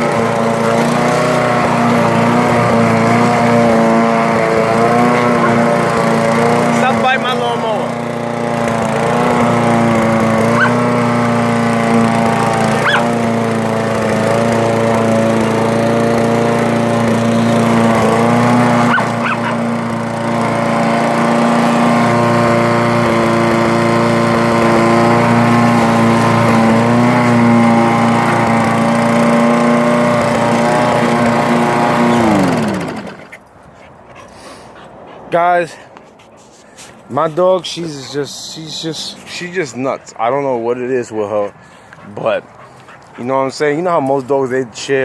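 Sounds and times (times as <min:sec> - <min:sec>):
lawn mower engine running: 0:00.0 - 0:34.7, 0:36.4 - 0:44.3
dog barking: 0:05.1 - 0:05.6, 0:10.6 - 0:10.8, 0:12.8 - 0:13.1, 0:18.9 - 0:19.6.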